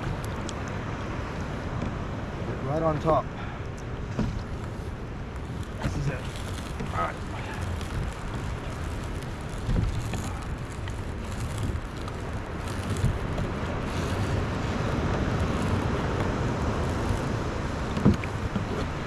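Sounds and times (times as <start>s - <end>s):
wind noise on microphone: 0.0s - 2.8s, 4.0s - 19.0s
water splashing: 0.0s - 19.0s
rope being hauled: 4.6s - 19.0s.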